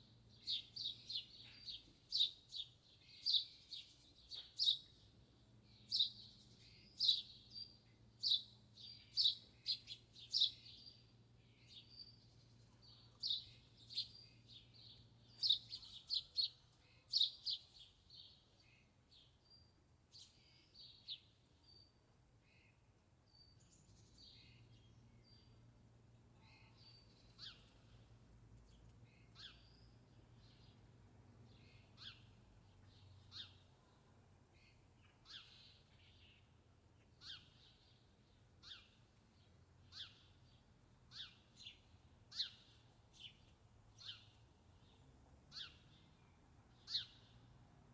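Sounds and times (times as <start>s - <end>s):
small birds chirping: 0.0s - 47.7s.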